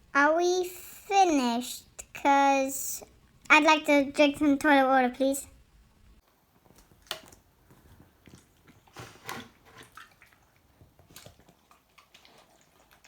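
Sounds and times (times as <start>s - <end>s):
dog lapping water: 7.0s - 13.0s.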